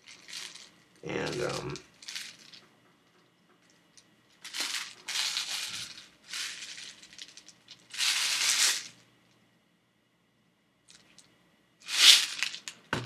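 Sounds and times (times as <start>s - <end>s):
bbs rattling in a container: 0.0s - 9.0s, 10.9s - 12.8s.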